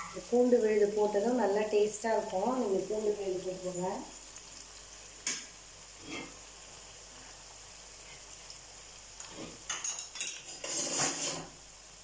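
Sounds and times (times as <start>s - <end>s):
vegetables sizzling in oil: 0.0s - 12.0s
spatula scraping clay pot: 10.5s - 11.5s.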